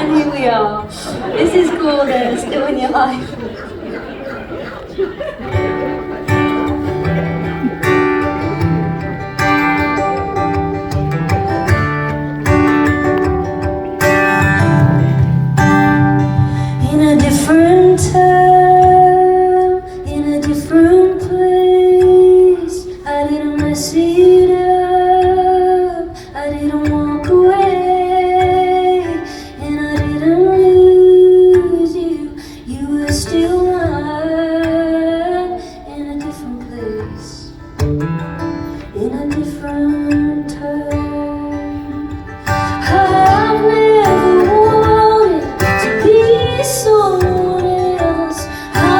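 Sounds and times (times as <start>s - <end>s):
guitar: 0.0s - 48.9s
woman singing: 15.8s - 37.7s, 38.9s - 48.9s.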